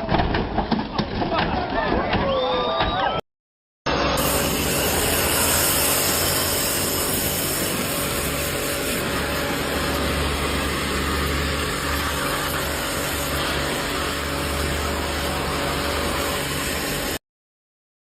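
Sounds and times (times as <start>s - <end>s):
machinery running: 3.9s - 17.2s.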